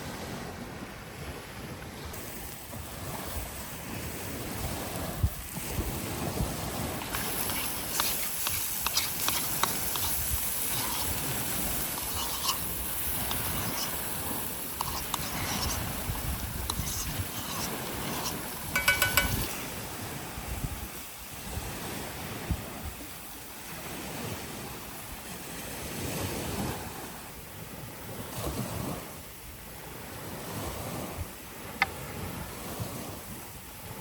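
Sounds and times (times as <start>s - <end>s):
sea waves washing on beach: 0.0s - 34.0s
wind on microphone: 0.0s - 34.0s
clinking: 18.8s - 19.6s.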